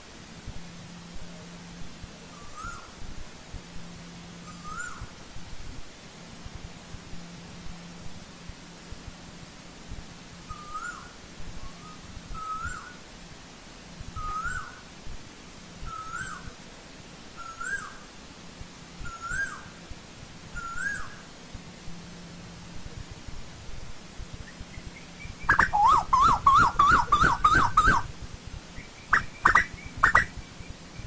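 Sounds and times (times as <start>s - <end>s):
bird rising call: 2.3s - 2.9s, 4.4s - 5.1s, 10.5s - 13.0s, 14.2s - 14.8s, 15.9s - 16.5s, 20.6s - 21.2s, 24.4s - 28.1s, 28.8s - 31.0s.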